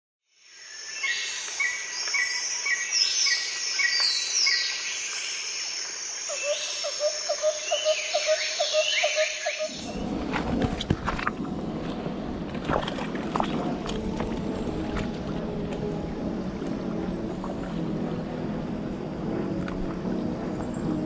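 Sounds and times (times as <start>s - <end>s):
high steady insect hiss: 0.3s - 10.3s
low rushing noise: 9.7s - 21.0s.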